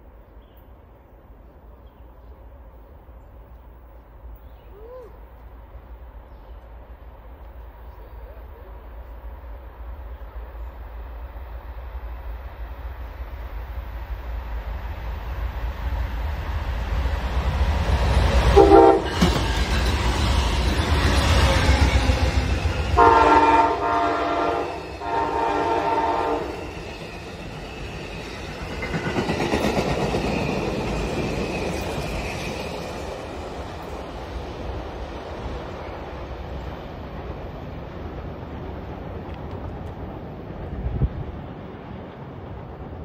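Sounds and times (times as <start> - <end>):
train wheels on rails: 5.3 - 43.0
train horn blasts: 18.6 - 19.3, 23.0 - 26.7.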